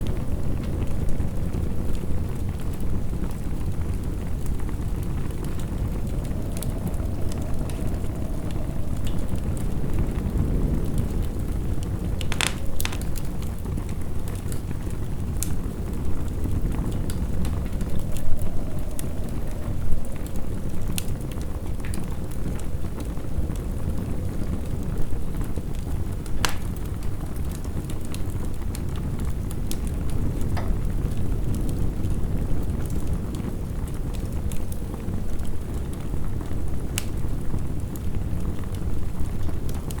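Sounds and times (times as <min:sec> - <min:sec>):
low rumble of wind: 0:00.0 - 0:40.0
wood fire crackling and popping: 0:00.0 - 0:40.0
sharp pops of fire: 0:05.3 - 0:19.4, 0:26.2 - 0:28.2.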